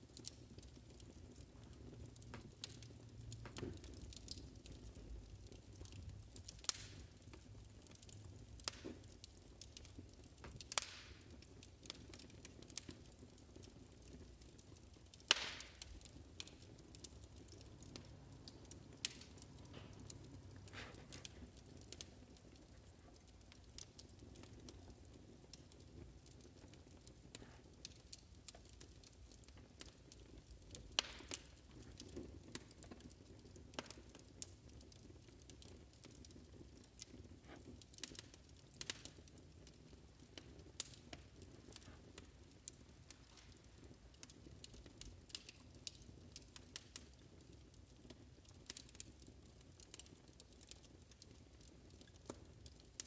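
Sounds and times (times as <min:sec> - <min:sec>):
wood fire crackling and popping: 0:00.0 - 0:53.0.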